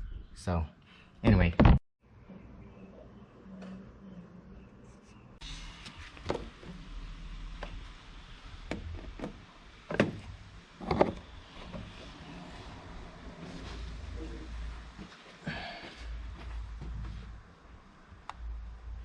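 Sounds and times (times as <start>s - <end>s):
knocks and clunks: 8.7s - 11.9s.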